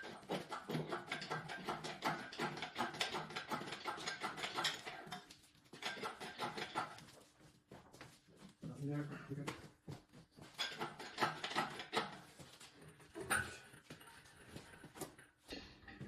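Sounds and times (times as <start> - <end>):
hoisting gear clicking and rattling: 0.0 - 7.0, 10.6 - 12.2.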